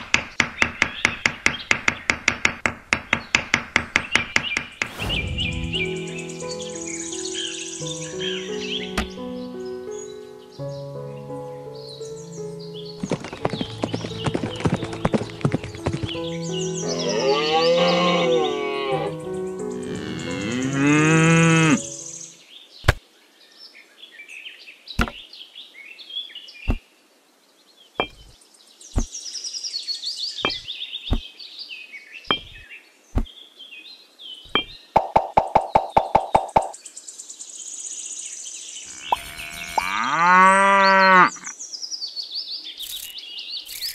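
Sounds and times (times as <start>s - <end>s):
background music: 4.9s - 22.3s
cow mooing: 17.0s - 19.2s, 19.8s - 21.9s, 38.9s - 41.5s
small bricks knocking on sand: 25.0s - 25.2s, 28.0s - 28.4s, 30.4s - 31.3s, 32.3s - 32.6s
faint bird chirps: 27.9s - 35.2s, 36.4s - 40.2s, 41.0s - 43.9s.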